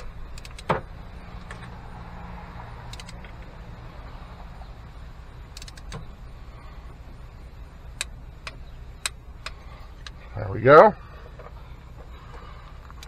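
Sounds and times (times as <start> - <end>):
low steady hum: 0.0 - 13.0
torque wrench clicks: 2.9 - 3.3.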